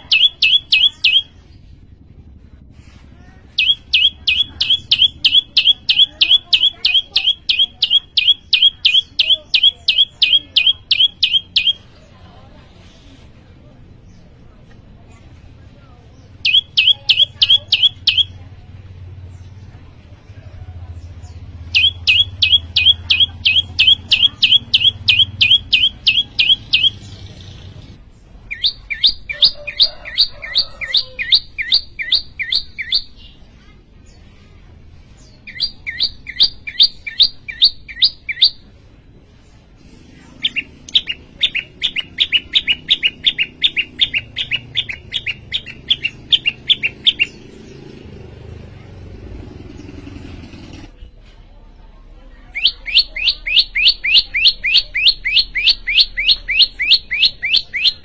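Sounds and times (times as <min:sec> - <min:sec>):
bird chirping song: 0:00.0 - 0:01.8, 0:03.4 - 0:12.1, 0:16.1 - 0:19.8, 0:20.9 - 0:34.3, 0:35.1 - 0:38.8, 0:40.3 - 0:48.0, 0:52.5 - 0:58.0.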